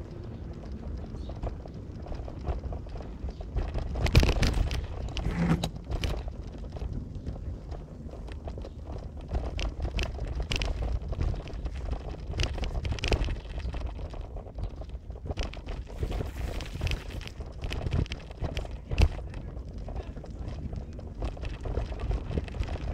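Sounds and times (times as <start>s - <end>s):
knocks and rattles: 3.6s - 6.8s.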